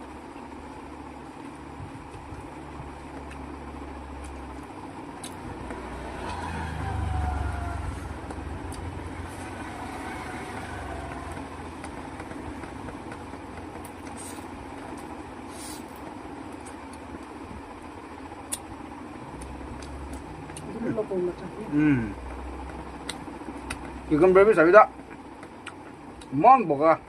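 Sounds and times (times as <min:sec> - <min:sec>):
steady low hum: 0:00.0 - 0:27.0
motor vehicle passing: 0:04.1 - 0:16.2, 0:19.2 - 0:24.6.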